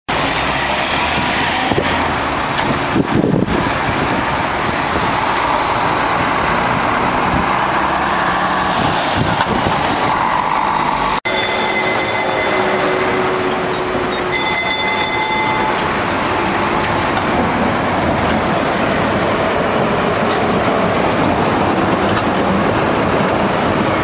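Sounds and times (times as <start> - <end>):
street noise: 0.1 - 24.0
tram running past: 0.1 - 24.0
high wheel squeal: 5.2 - 16.1, 20.8 - 21.4.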